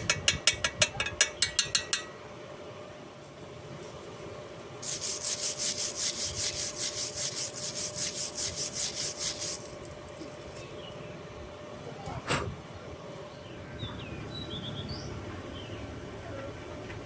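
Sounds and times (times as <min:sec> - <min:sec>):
hand tool scraping metal: 0:04.8 - 0:10.4.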